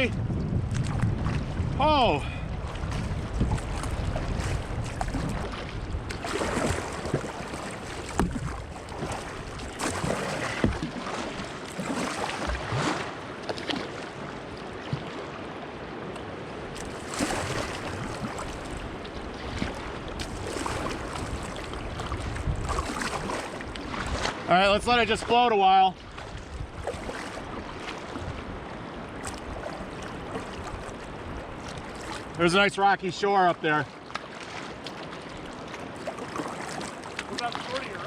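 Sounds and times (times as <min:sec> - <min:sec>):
wind rumble on microphone: 0:00.0 - 0:11.6, 0:16.4 - 0:25.3, 0:26.0 - 0:32.4
water rushing around kayak: 0:00.0 - 0:38.0.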